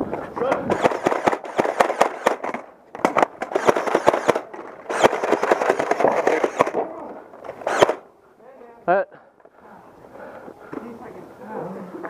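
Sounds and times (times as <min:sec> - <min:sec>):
toy blasters firing darts: 0:00.7 - 0:06.8, 0:07.6 - 0:08.0.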